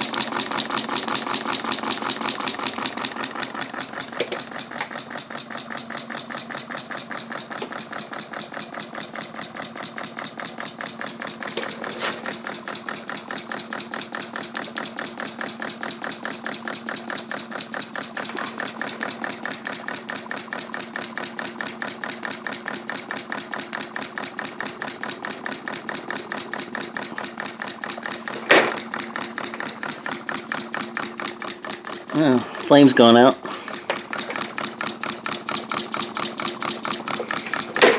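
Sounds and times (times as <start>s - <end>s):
steam engine exhaust chuffs: 0.0s - 37.9s
mechanical clicking: 24.6s - 37.9s.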